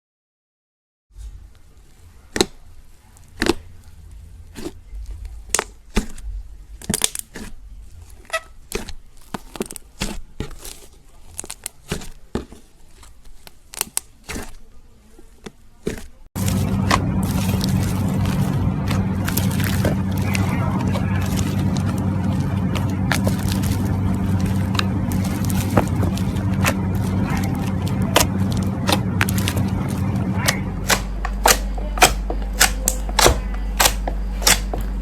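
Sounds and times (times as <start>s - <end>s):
slime popping and clicking: 3.3s - 3.7s, 15.5s - 34.9s.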